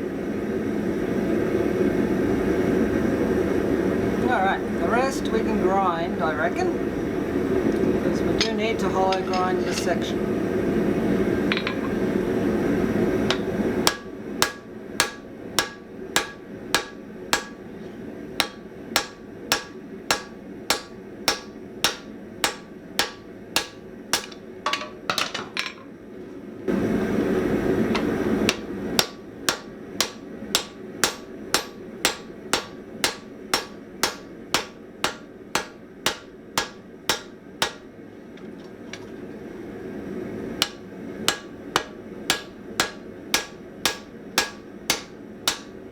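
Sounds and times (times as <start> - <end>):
hammer striking steel on anvil: 13.3 - 17.7, 18.4 - 25.3, 28.0 - 37.9, 40.6 - 45.8.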